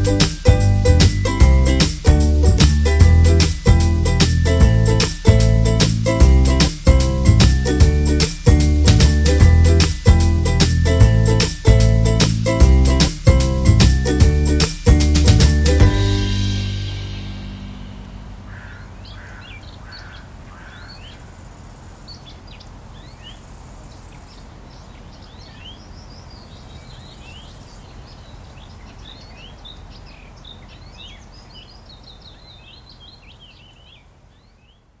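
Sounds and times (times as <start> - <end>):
small birds chirping: 0.0 - 14.8, 16.9 - 35.0
low background rumble: 0.0 - 20.6.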